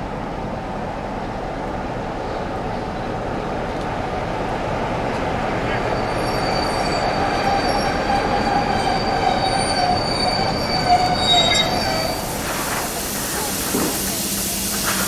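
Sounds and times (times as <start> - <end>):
steady train rumble: 0.0 - 15.0
train wheels squealing on rails: 4.3 - 15.0.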